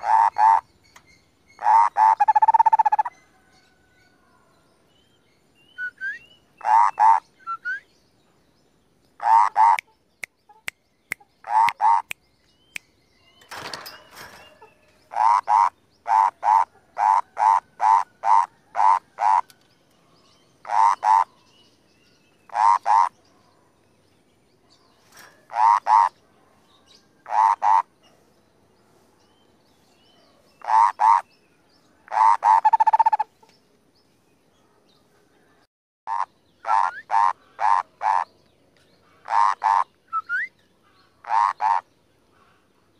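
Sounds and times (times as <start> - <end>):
brief rustle: 13.4 - 15.0, 25.0 - 25.5.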